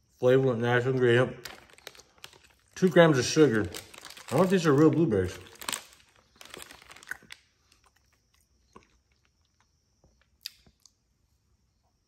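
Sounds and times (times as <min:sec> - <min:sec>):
quiet chewing: 0:06.4 - 0:11.0
wet mouth clicks: 0:10.4 - 0:11.0.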